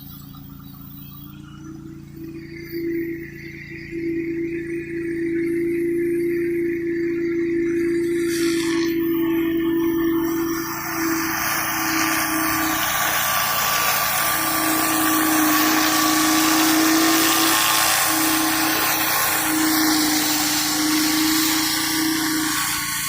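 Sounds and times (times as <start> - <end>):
pressure washer engine running: 8.0 - 23.0
water jet hissing on concrete: 8.0 - 23.0.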